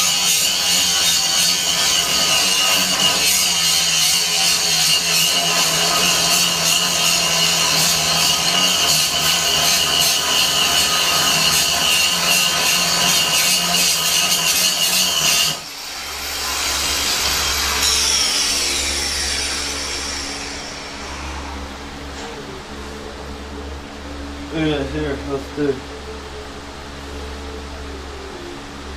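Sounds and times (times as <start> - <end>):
angle grinder grinding steel: 0.0 - 22.0
grinder whine falling in pitch: 17.4 - 28.9.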